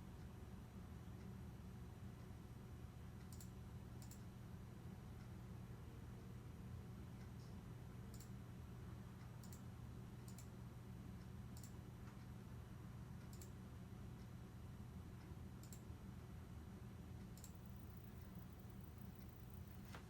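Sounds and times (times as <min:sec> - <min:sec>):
low steady hum: 0:00.0 - 0:20.0
faint sharp clicks: 0:03.2 - 0:04.2, 0:08.1 - 0:08.4, 0:13.2 - 0:13.5, 0:17.4 - 0:18.4.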